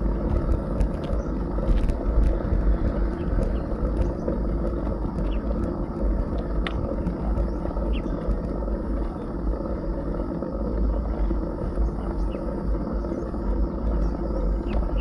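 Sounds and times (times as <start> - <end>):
road noise: 0.0 - 15.0
wind buffeting microphone: 0.0 - 15.0
faint sharp ticks: 5.1 - 8.1.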